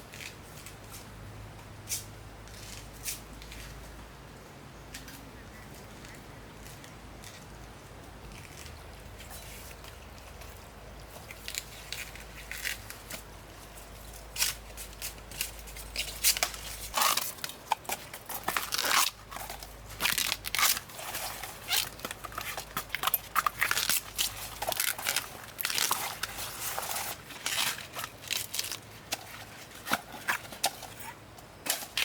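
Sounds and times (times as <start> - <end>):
crisp crunching and snapping: 14.3 - 30.4.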